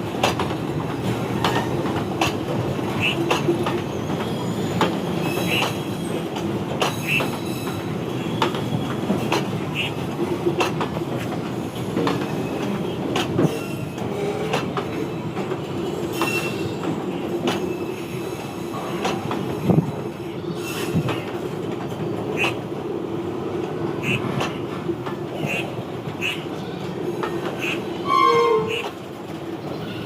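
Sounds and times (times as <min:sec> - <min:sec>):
wheels clacking over rail joints: 0:00.0 - 0:17.8, 0:18.8 - 0:19.8
train wagons rumbling: 0:00.0 - 0:30.0
high wheel squeals: 0:27.6 - 0:28.9.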